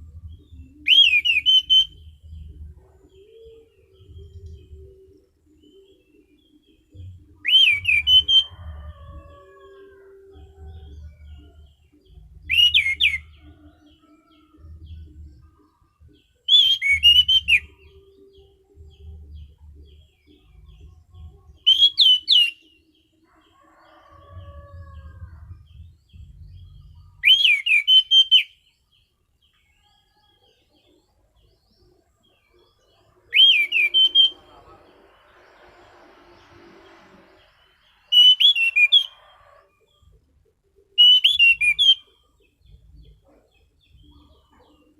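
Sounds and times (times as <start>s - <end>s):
thrush singing whistled notes: 0.0s - 8.8s, 12.2s - 13.6s, 16.4s - 20.8s, 21.5s - 22.8s, 26.5s - 28.7s, 33.3s - 39.4s, 40.9s - 42.3s.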